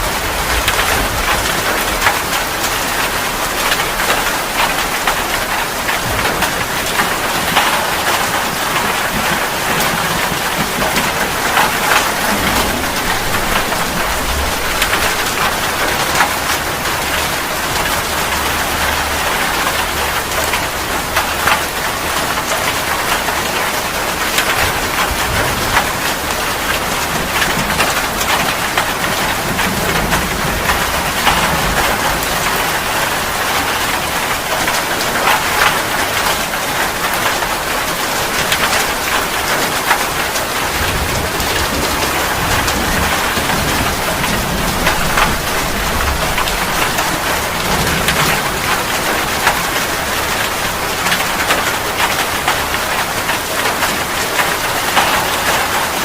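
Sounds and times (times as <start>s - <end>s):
heavy rain pattering: 0.0s - 56.0s
soft low rumbles: 10.4s - 16.6s.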